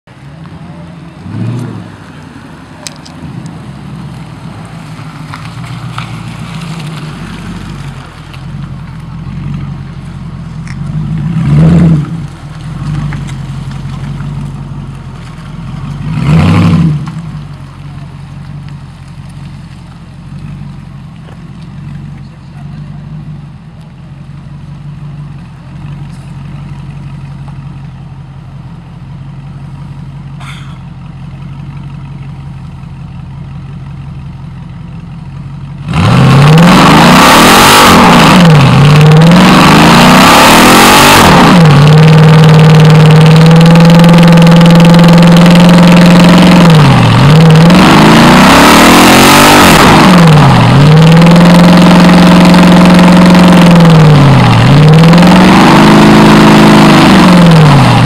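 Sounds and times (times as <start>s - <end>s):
car engine idling: 0.0s - 11.4s, 12.0s - 16.2s, 17.0s - 58.0s
car engine revving: 0.5s - 28.0s, 35.4s - 58.0s.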